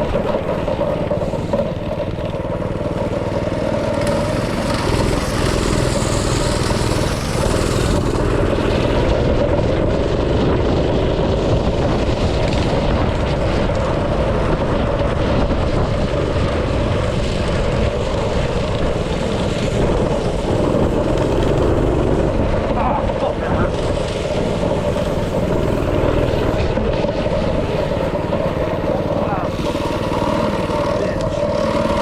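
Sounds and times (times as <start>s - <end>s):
small petrol engine running: 0.0s - 32.0s.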